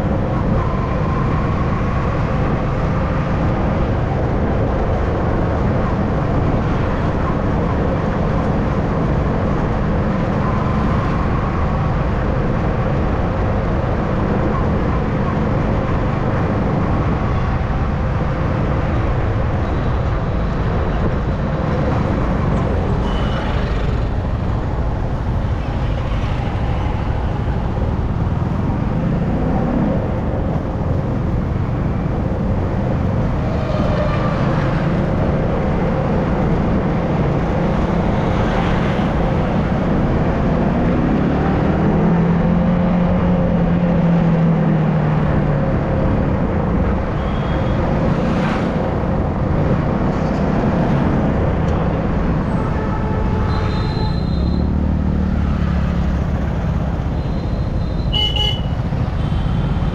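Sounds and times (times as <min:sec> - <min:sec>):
wind and road noise: 0:00.0 - 0:59.9
vehicle horn: 0:47.2 - 0:47.8, 0:52.5 - 0:54.7, 0:57.3 - 0:59.9.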